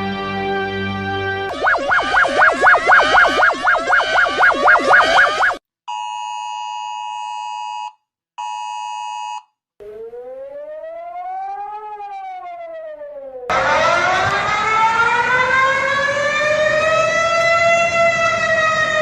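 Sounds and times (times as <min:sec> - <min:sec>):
electronic two-tone chord: 0:01.5 - 0:05.6
fast warbling alarm tone: 0:01.5 - 0:05.6
rising and falling siren: 0:01.5 - 0:05.6, 0:09.8 - 0:19.0.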